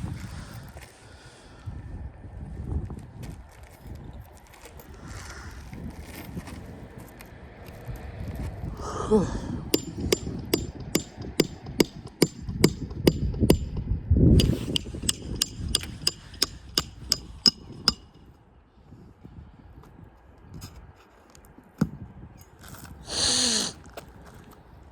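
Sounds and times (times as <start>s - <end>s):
hammer driving nails: 9.8s - 18.2s.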